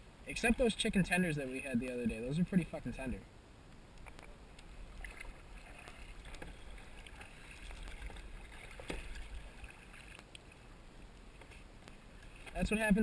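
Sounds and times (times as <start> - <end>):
water splashing and lapping: 4.0 - 13.0.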